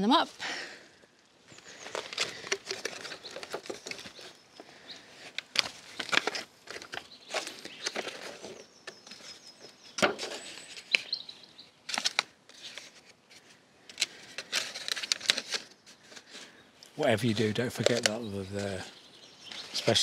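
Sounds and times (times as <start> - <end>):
bird chirping: 1.5 - 6.2, 6.9 - 11.9, 15.6 - 20.0
plant pots being moved: 1.5 - 11.0, 11.9 - 18.9.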